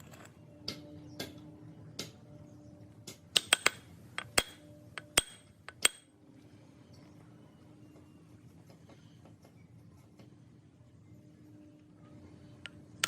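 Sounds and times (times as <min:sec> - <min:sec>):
metal parts clinking: 0:00.0 - 0:00.4
faint steady hum: 0:00.0 - 0:13.0.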